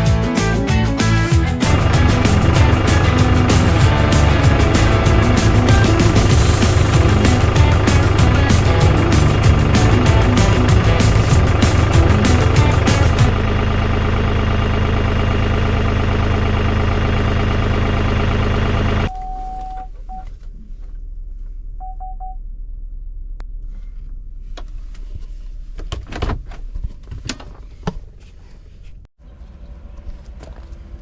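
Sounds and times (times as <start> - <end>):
tractor running: 1.1 - 19.1
sharp knocks and clanks: 1.6 - 13.4
short beeps: 19.1 - 20.3, 21.8 - 22.4.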